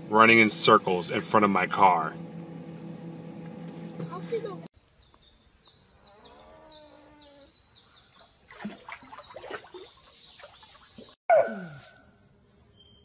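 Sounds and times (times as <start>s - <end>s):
water splashing: 8.2s - 11.2s.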